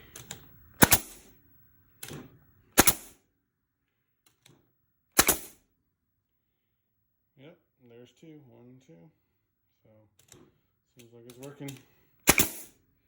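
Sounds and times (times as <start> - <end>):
nail gun shots: 0.8 - 1.3, 2.8 - 3.2, 5.2 - 5.6, 12.2 - 12.8.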